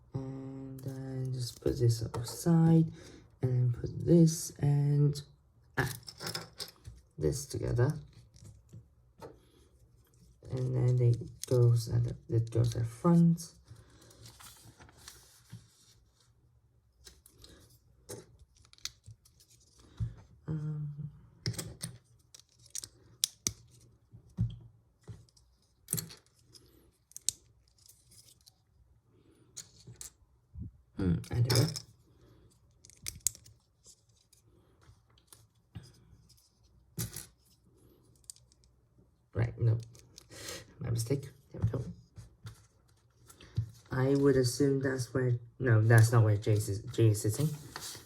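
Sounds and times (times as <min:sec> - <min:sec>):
plastic pieces clicking: 0:21.5 - 0:23.8, 0:27.1 - 0:28.5, 0:32.7 - 0:33.6.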